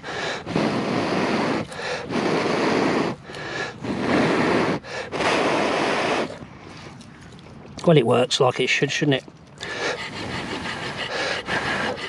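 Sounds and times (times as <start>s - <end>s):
person blowing into tinder: 0.0s - 6.4s, 9.7s - 12.0s.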